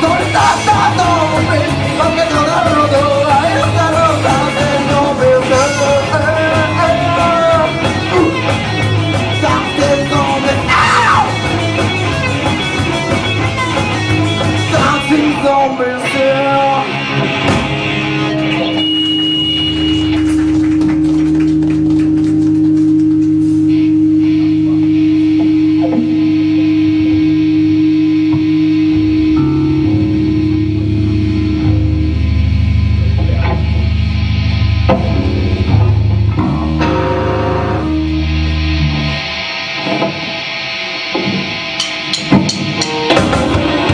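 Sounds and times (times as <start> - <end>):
rock band playing live: 0.0 - 43.9
sustained guitar tone: 0.0 - 43.9
amplifier hum: 18.1 - 39.4.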